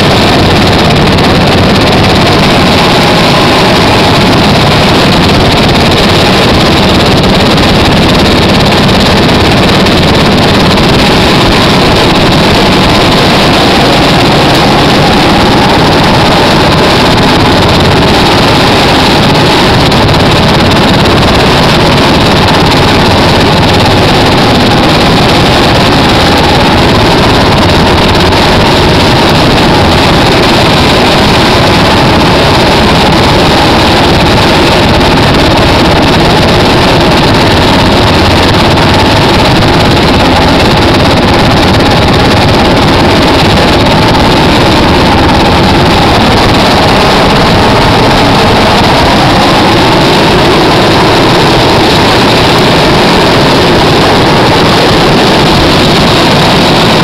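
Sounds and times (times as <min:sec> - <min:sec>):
helicopter engine and rotor noise: 0:00.0 - 0:57.0.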